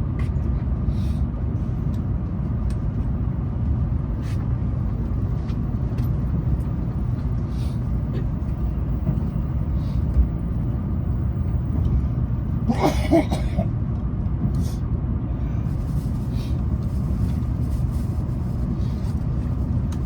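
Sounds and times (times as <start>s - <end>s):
train running heard from inside: 0.0s - 20.0s.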